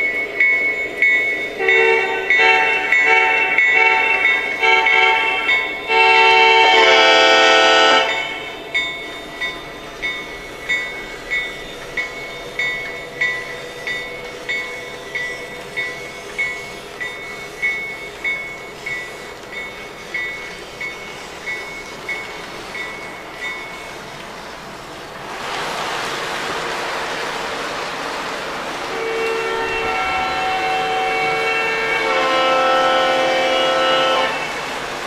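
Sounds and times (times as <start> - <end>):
locomotive bell ringing: 0.0 - 24.9, 28.9 - 34.7
model locomotive horn blast: 1.6 - 8.6, 28.9 - 34.7.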